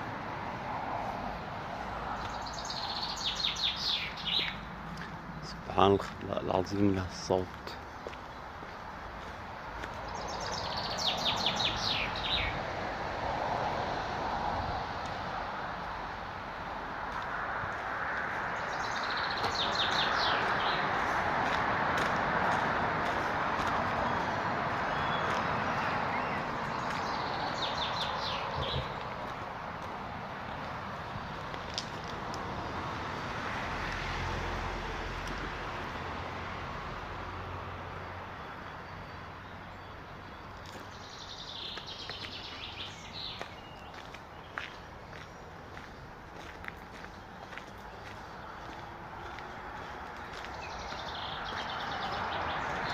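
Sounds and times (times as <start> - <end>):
vehicle passing: 0.0 - 52.9
songbird singing: 1.2 - 14.1, 15.0 - 32.9, 33.9 - 52.9.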